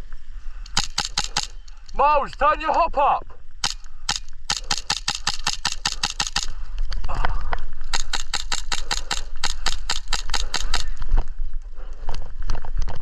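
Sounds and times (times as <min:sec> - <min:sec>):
airsoft guns firing: 0:00.7 - 0:01.6, 0:03.6 - 0:06.6, 0:07.9 - 0:11.0.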